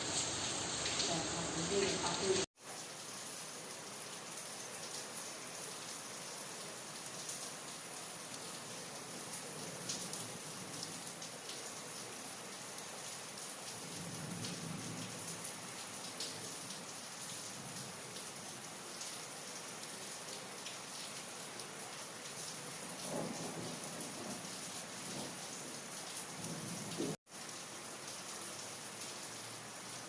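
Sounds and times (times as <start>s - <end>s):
rain falling: 0.0s - 30.0s
raindrops striking surfaces: 0.0s - 30.0s.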